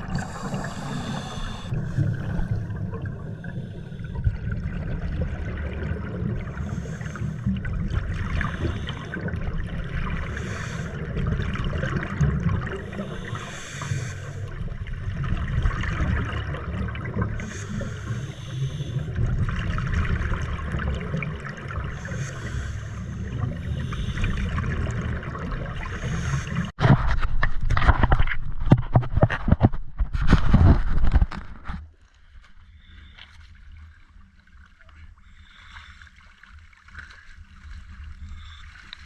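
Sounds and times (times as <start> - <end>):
exhaled bubbles from diver: 0.0 - 26.7.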